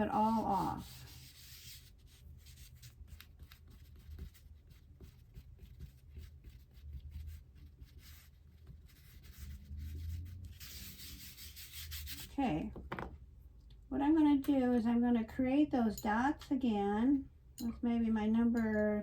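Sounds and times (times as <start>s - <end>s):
rubbing on paper: 0.0s - 12.4s.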